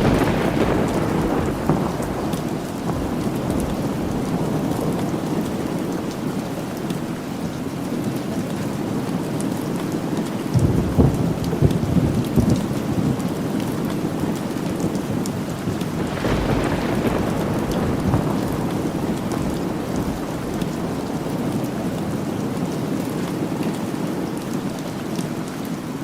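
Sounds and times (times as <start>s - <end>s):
rolling thunder: 0.0s - 6.8s, 10.5s - 23.6s
rain falling: 0.0s - 26.0s.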